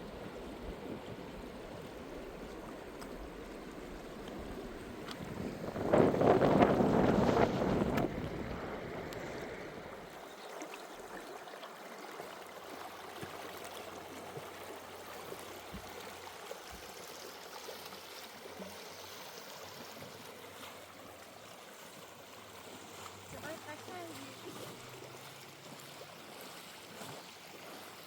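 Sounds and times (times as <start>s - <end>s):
wind buffeting microphone: 0.0s - 10.1s
river water rushing: 0.0s - 28.0s.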